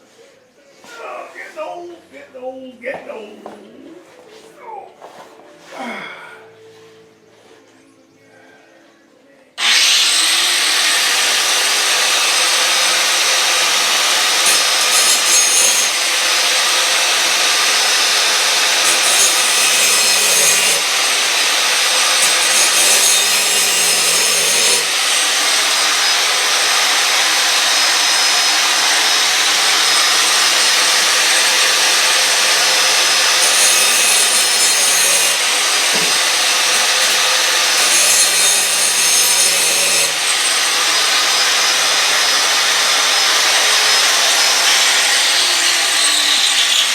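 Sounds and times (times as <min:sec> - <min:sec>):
power grinder grinding steel: 0:09.6 - 0:46.9.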